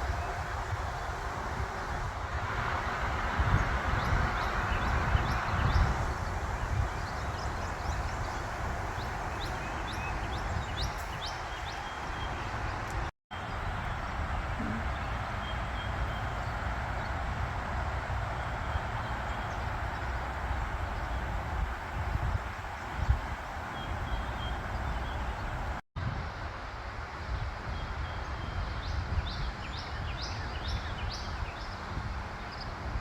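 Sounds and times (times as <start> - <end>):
small birds chirping: 4.0 - 17.2.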